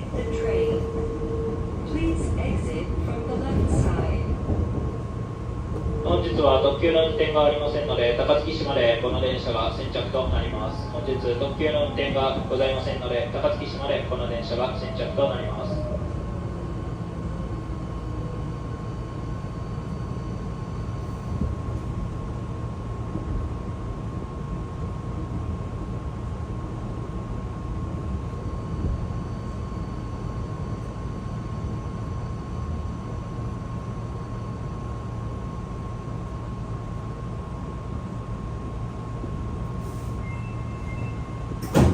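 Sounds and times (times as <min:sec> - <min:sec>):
train rumbling with high whine: 0:00.0 - 0:41.9.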